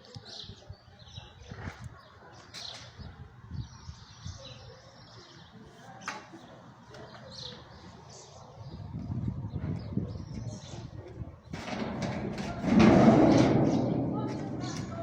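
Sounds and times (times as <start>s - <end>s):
birds chirping: 0.1s - 15.0s
low rumbling: 11.6s - 15.0s.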